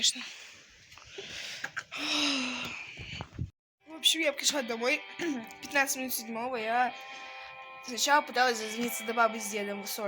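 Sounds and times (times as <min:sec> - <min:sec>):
woman sighing: 0:01.9 - 0:03.0.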